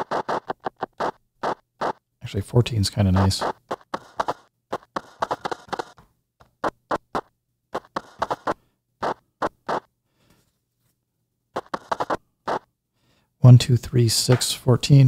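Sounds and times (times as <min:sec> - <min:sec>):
glitchy noise bursts: 0:00.0 - 0:02.0.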